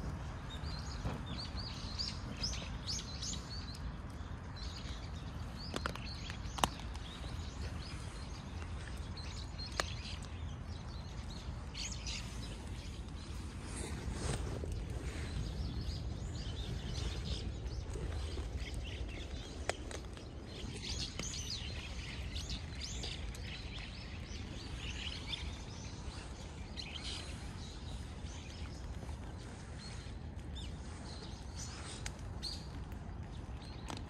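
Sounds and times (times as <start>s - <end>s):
low outdoor rumble: 0.0s - 34.0s
small birds chirping: 0.0s - 34.0s.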